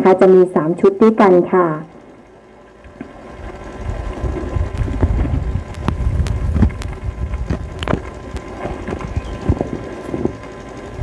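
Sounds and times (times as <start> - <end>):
wind buffeting microphone: 3.4 - 11.0.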